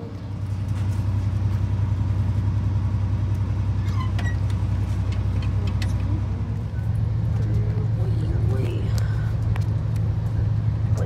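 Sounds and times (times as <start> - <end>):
passenger train hum and rumble: 0.0 - 11.0.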